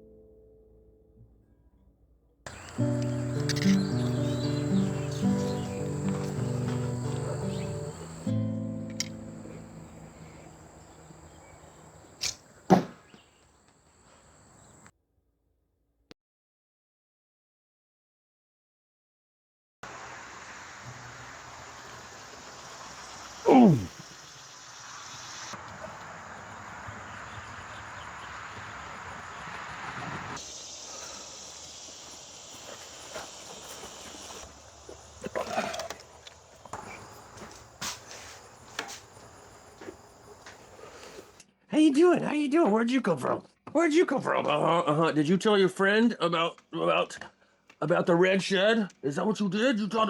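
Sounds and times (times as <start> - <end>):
held music chord: 2.5 - 11.8
high thin insect-like whine: 2.5 - 12.6, 19.9 - 41.4.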